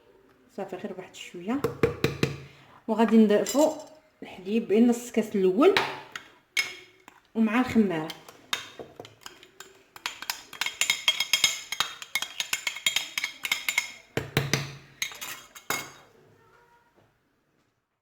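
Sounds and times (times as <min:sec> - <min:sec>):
metal spoon clinking against a dish: 0:08.0 - 0:16.0.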